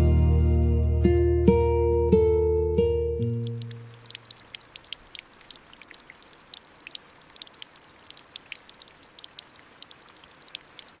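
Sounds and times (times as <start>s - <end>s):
raindrops dripping: 2.8s - 11.0s
steady hiss of rainfall: 3.2s - 11.0s.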